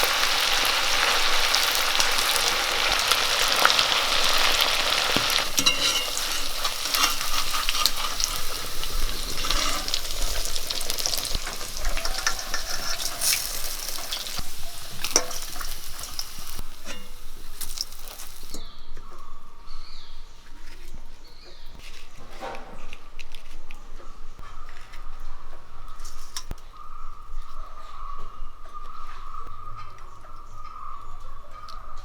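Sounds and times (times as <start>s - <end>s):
chicken sizzling in hot oil: 0.0s - 18.6s.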